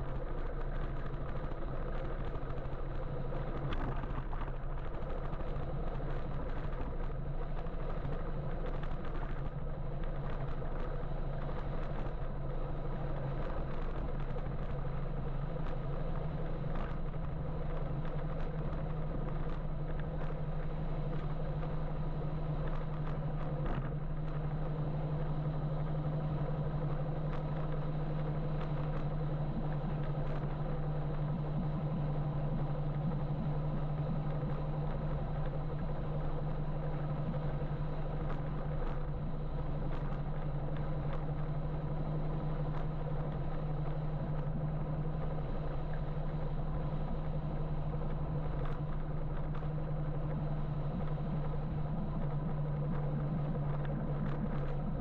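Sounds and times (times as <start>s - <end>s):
wind and road noise: 0.0s - 55.0s
electric motor low hum: 23.5s - 55.0s.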